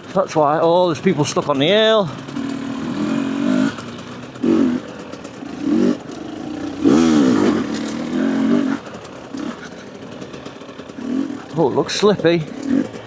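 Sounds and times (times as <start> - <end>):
two-stroke motorcycle engine revving: 0.0 - 13.0.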